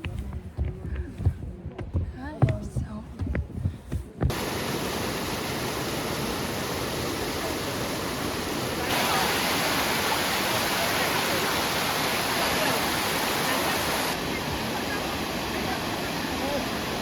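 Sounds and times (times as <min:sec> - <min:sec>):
waterfall roaring: 0:04.3 - 0:17.0.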